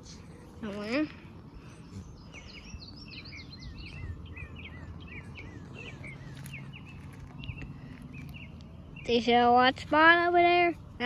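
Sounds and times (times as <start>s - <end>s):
low steady hum: 0.0s - 11.0s
small bird chirping: 0.6s - 9.4s.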